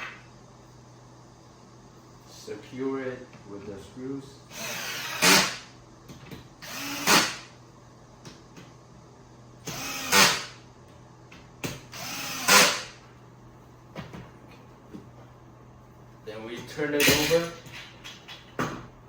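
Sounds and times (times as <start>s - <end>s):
power drill driving screws: 4.5s - 5.7s, 6.6s - 7.5s, 9.6s - 10.6s, 11.9s - 13.0s.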